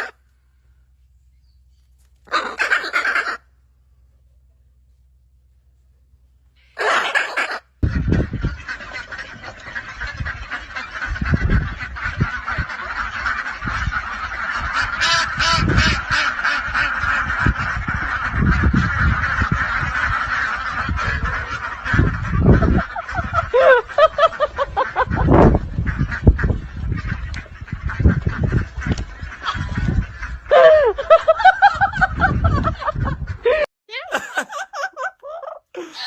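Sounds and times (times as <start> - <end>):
dense bird chorus: 6.6 - 30.6.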